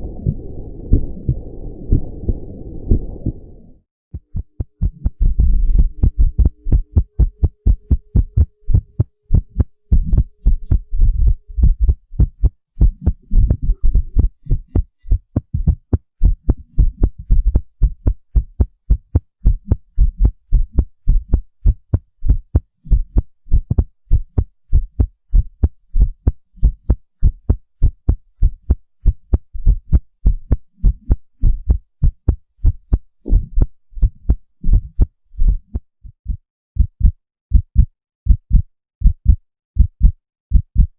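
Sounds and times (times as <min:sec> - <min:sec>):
heartbeat thumps: 0:00.0 - 0:03.5, 0:04.1 - 0:40.9.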